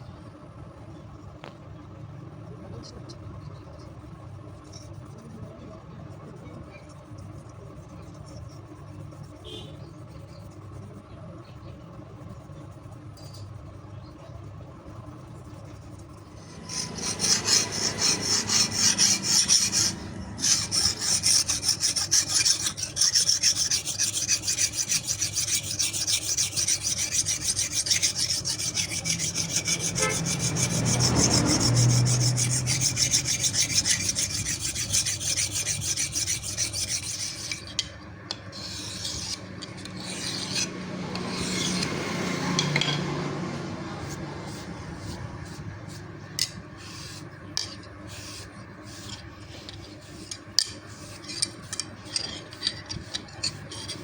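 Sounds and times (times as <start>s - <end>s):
knife blade scraped by abrasive: 15.3s - 54.0s.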